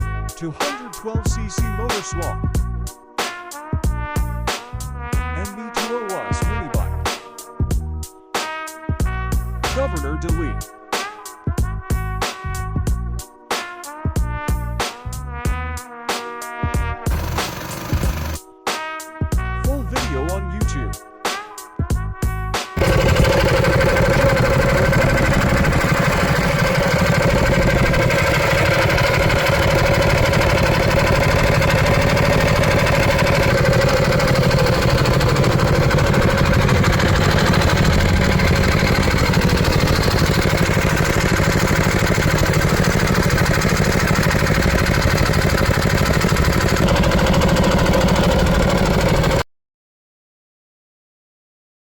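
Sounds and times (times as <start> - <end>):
small engine running steadily: 0.0 - 2.6, 6.4 - 7.1, 9.1 - 10.6, 17.1 - 18.4, 22.8 - 49.5.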